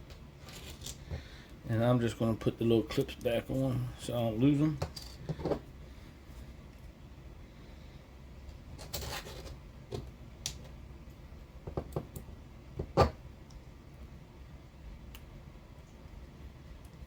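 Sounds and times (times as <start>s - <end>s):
small parts scraping: 0.1s - 1.2s, 8.8s - 9.6s.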